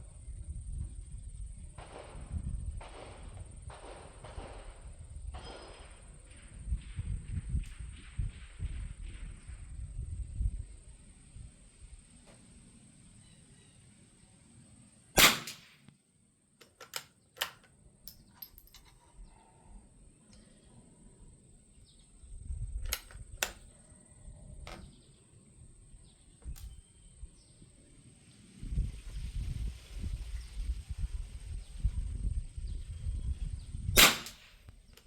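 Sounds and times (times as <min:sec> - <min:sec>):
rifle shot: 0:01.8 - 0:07.1, 0:15.2 - 0:15.9, 0:34.0 - 0:34.6
rifle bolt clicking: 0:15.2 - 0:15.7, 0:16.6 - 0:18.9, 0:22.8 - 0:23.6, 0:34.0 - 0:34.4.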